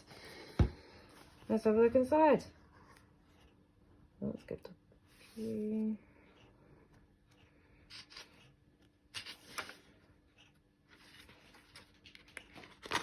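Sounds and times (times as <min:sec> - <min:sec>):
paper pages rustling: 0:09.1 - 0:10.0, 0:10.9 - 0:13.0.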